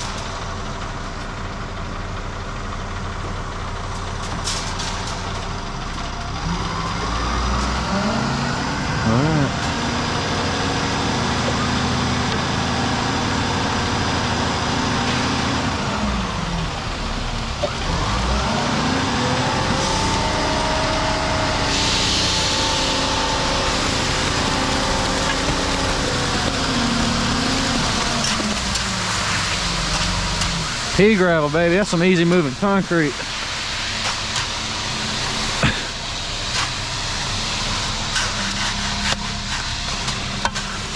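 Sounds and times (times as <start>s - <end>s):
truck diesel engine revving: 0.0s - 40.9s
concrete discharging: 17.8s - 40.9s.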